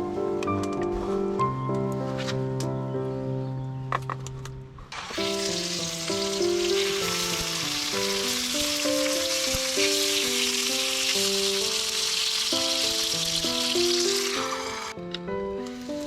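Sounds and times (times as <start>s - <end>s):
background music: 0.0s - 16.0s
food sizzling: 5.0s - 16.0s.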